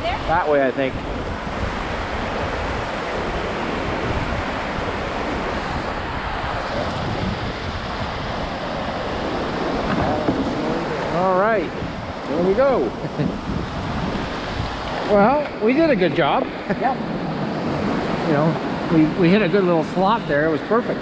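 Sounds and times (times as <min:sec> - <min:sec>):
river rapids rushing: 0:00.0 - 0:21.0
wind noise on microphone: 0:00.0 - 0:21.0.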